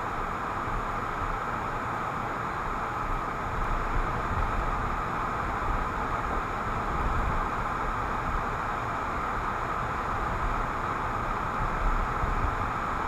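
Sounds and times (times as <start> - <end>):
low engine and road rumble: 0.0 - 13.0.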